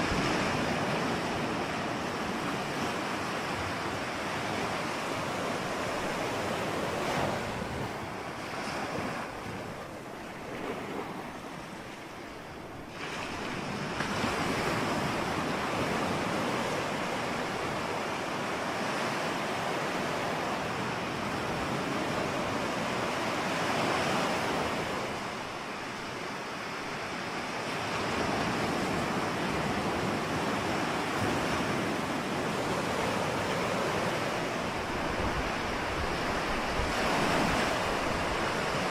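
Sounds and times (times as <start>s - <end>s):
waves breaking: 0.0s - 38.9s
wind buffeting microphone: 28.0s - 38.9s.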